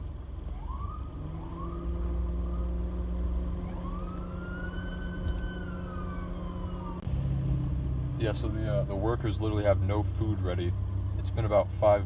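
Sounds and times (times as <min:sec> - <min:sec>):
police siren wailing: 0:00.4 - 0:07.1.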